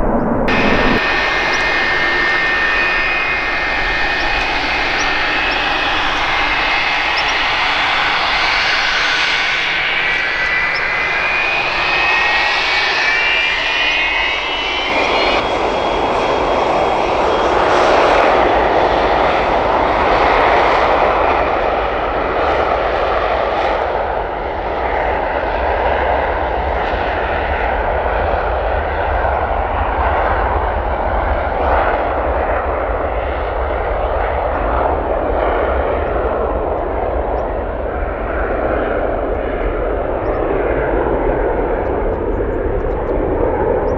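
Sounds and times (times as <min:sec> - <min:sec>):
high rising engine whine: 0:00.0 - 0:17.7, 0:38.9 - 0:43.9
aircraft engines roaring: 0:00.0 - 0:19.0, 0:36.8 - 0:43.9.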